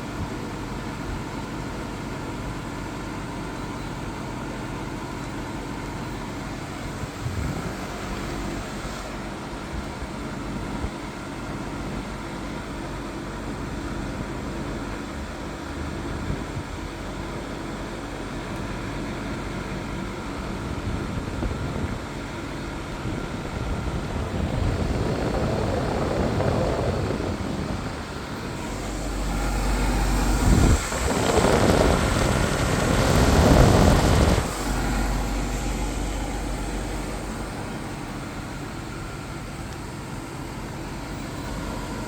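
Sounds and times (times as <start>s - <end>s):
air conditioner fan hum: 0.0s - 15.4s, 16.0s - 42.0s
rushing of air: 23.7s - 40.2s.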